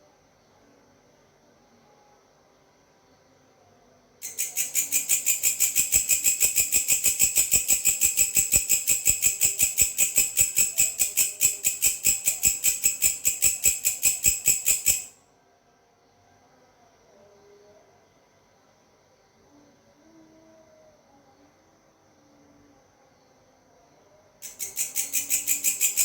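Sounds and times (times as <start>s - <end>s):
grasshopper calling: 4.2s - 15.2s, 24.4s - 26.0s.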